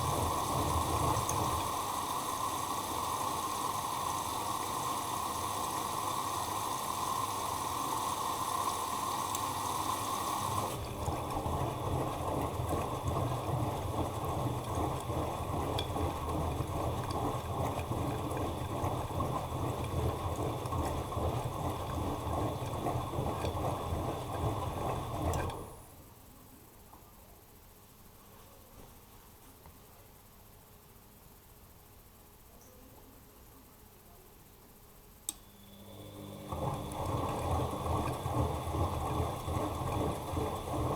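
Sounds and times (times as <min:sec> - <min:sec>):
water rushing in washing machine: 0:00.0 - 0:25.8, 0:35.6 - 0:40.9
washing machine whine: 0:00.0 - 0:26.0, 0:35.3 - 0:40.9.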